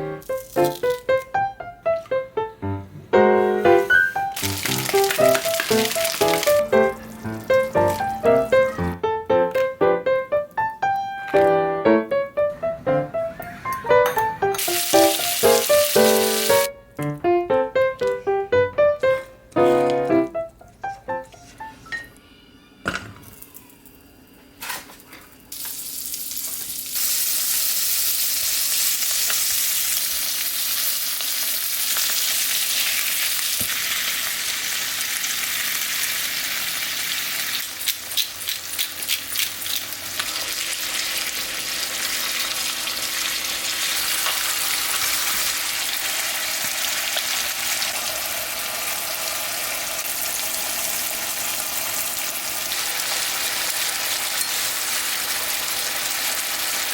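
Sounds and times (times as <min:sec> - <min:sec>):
food sizzling in a pan: 0:00.2 - 0:01.1, 0:04.1 - 0:08.8, 0:14.5 - 0:16.7, 0:25.5 - 0:56.9.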